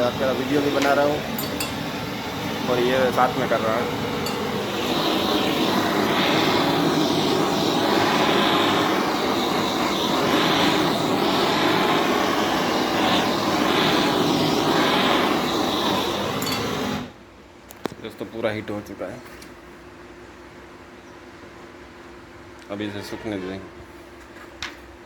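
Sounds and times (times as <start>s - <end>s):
heat gun blowing air: 0.0s - 17.2s.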